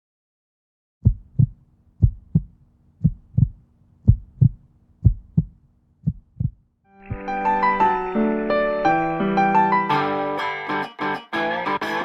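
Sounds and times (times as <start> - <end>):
faint hum: 1.0 - 6.6
heartbeat thumps: 1.0 - 7.3.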